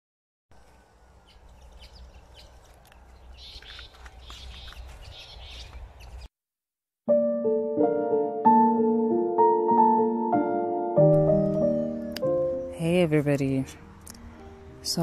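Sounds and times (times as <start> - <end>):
birds chirping: 0.6 - 6.3.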